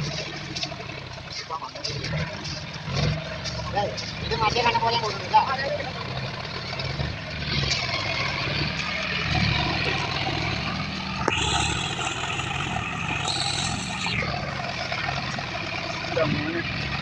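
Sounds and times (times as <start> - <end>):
tractor engine running: 0.0 - 17.0
hiss: 11.3 - 14.2.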